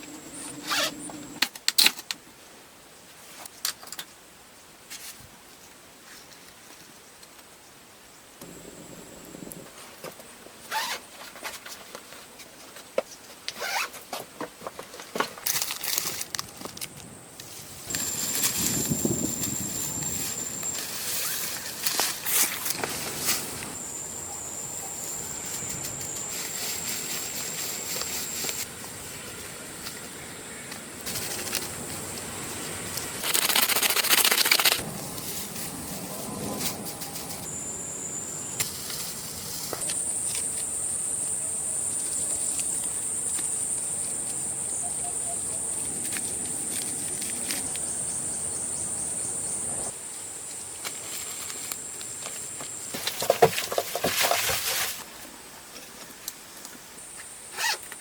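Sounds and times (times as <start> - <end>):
high-pitched insect buzzing: 33.2 - 34.8.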